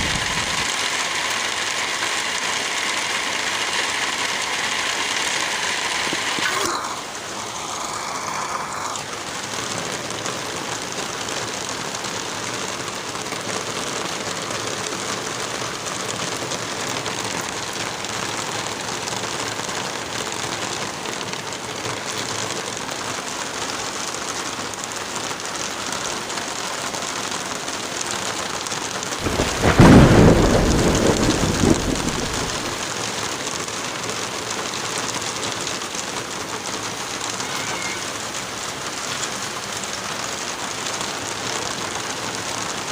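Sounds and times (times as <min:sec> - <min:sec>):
steady rain: 0:00.0 - 0:42.9
thunder clap rumbling: 0:29.2 - 0:32.9.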